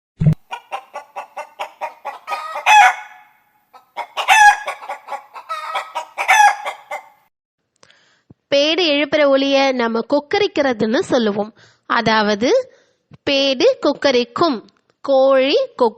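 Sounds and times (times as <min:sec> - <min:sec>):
hen cackling: 0:00.5 - 0:07.2.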